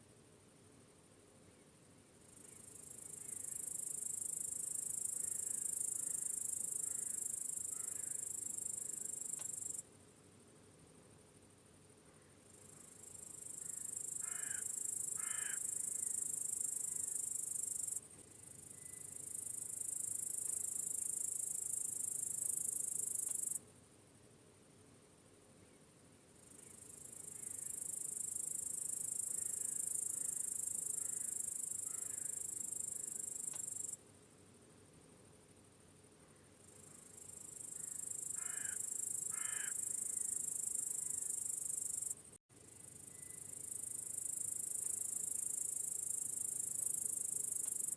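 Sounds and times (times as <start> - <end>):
crickets trilling: 12.5 - 23.6, 26.3 - 34.0, 36.4 - 47.9.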